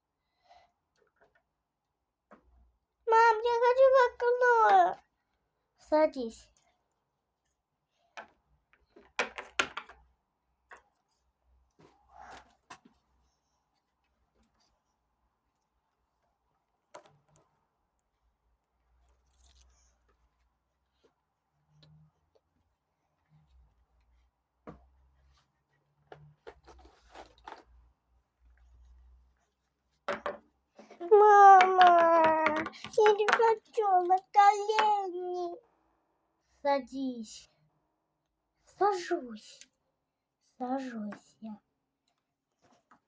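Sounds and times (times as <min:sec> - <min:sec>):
plastic toy figurines tapping: 0:09.1 - 0:10.0, 0:31.4 - 0:34.1.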